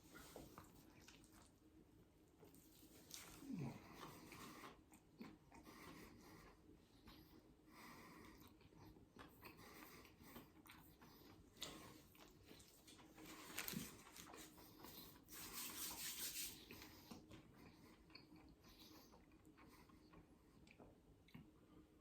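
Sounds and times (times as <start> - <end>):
faint chewing: 0.0 - 16.0, 16.6 - 21.8
soft rustling: 12.6 - 16.6.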